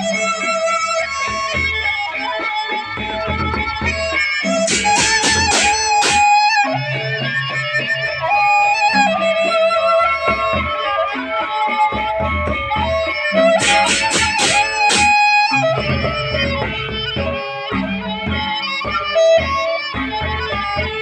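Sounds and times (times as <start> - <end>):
bamboo flute melody: 0.0 - 21.0
large drum strokes: 4.4 - 6.3, 13.4 - 17.4.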